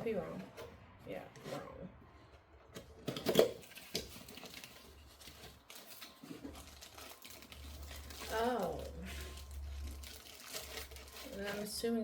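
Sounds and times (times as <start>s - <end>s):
packaging clicks and rustles: 2.7s - 12.0s.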